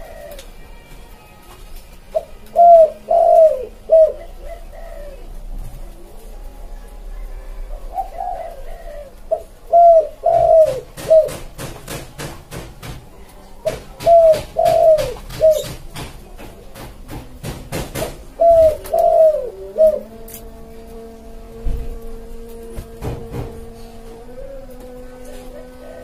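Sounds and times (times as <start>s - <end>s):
dove cooing: 0.0s - 0.9s, 2.1s - 11.7s, 13.6s - 15.8s, 17.7s - 26.0s.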